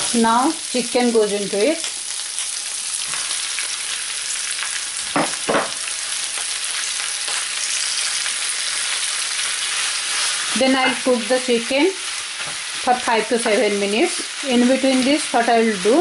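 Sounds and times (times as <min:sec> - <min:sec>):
onion frying sizzle: 0:00.0 - 0:16.0
meat knocking into pan: 0:05.1 - 0:05.8.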